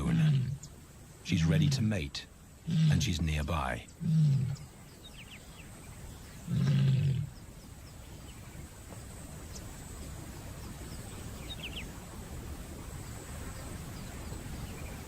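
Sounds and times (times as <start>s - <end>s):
lioness low call: 0.0s - 0.7s, 2.6s - 4.8s, 6.4s - 7.4s
low steady background: 0.0s - 15.0s.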